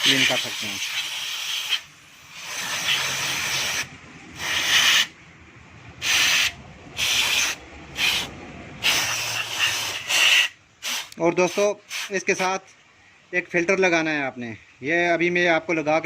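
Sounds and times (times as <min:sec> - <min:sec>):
aerosol spray hissing bursts: 0:00.0 - 0:05.1, 0:06.0 - 0:12.5.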